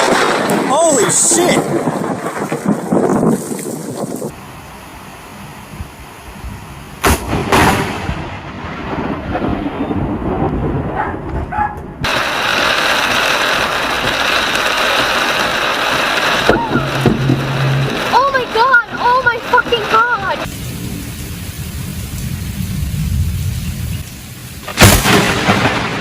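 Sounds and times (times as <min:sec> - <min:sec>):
loud hiss of rain or wind: 0:00.0 - 0:02.2, 0:04.3 - 0:08.1, 0:12.0 - 0:26.0
rumble of thunder: 0:00.0 - 0:04.2, 0:07.0 - 0:12.7, 0:20.4 - 0:26.0
thunderclap: 0:00.0 - 0:04.4, 0:07.0 - 0:26.0.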